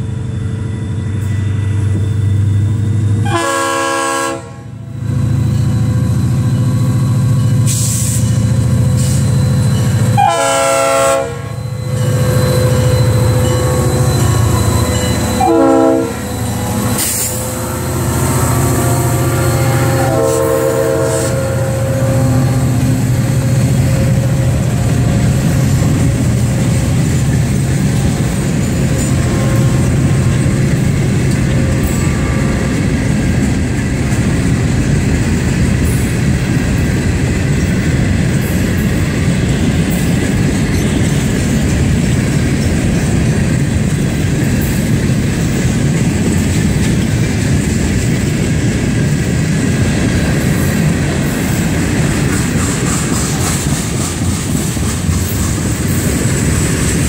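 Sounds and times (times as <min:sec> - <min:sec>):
train wheels rumbling and clacking: 0:00.0 - 0:57.0
locomotive air horn: 0:03.2 - 0:04.8, 0:10.1 - 0:12.2, 0:12.8 - 0:25.3, 0:31.5 - 0:32.8.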